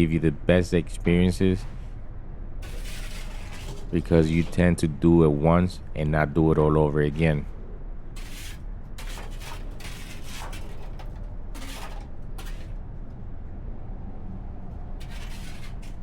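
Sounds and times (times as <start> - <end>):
steady low rumble: 0.0 - 16.0
shovel scraping: 2.6 - 5.0, 8.2 - 12.8, 15.0 - 16.0.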